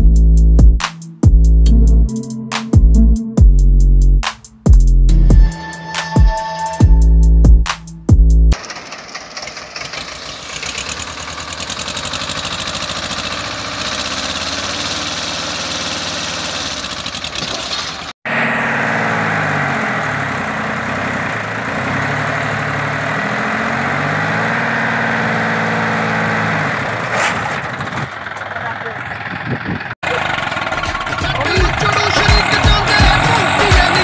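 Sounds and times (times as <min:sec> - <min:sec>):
diesel tractor engine revving: 0:08.5 - 0:34.0.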